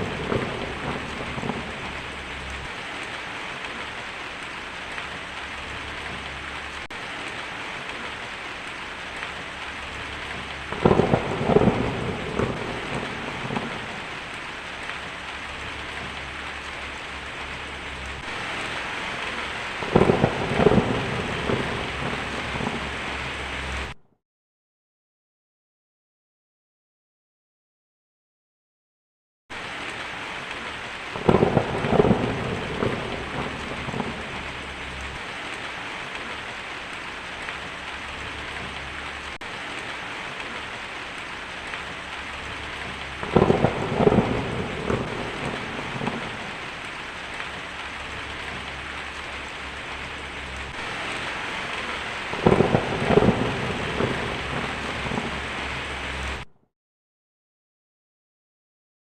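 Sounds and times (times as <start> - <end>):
thunder cracks rumbling: 0.0 - 4.0, 9.3 - 24.0, 31.0 - 56.5
heavy rain hissing: 0.0 - 24.0, 29.5 - 56.5.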